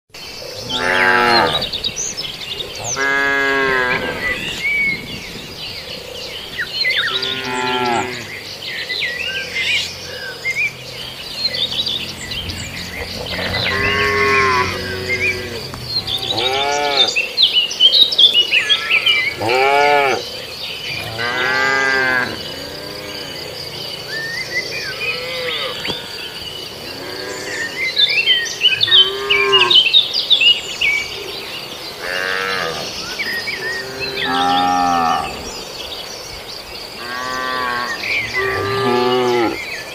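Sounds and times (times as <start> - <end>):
birds chirping: 0.2 - 39.9
high insect drone: 0.3 - 39.9
cows mooing: 0.6 - 1.9, 2.8 - 4.7, 7.0 - 8.4, 11.0 - 17.3, 18.6 - 20.3, 20.9 - 24.1, 24.8 - 27.8, 28.7 - 29.9, 32.0 - 35.6, 37.0 - 39.7.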